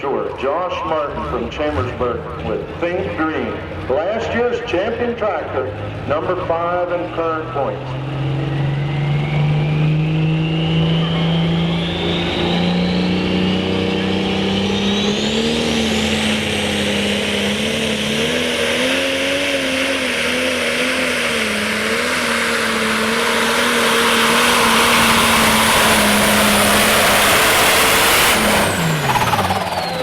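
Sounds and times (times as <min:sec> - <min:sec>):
diesel tractor engine at full throttle: 0:00.0 - 0:30.0
high turbo whistle: 0:08.2 - 0:17.8.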